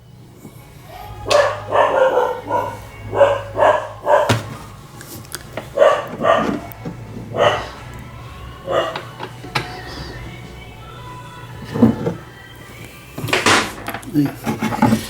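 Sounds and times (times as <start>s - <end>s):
dog barking: 1.2s - 9.2s.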